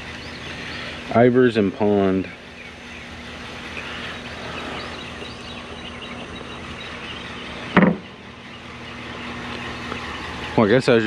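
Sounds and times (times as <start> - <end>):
faint bird chirps: 0.0 - 11.0
low hum of idling vehicle: 0.0 - 11.0
short loud knock: 7.8 - 8.1.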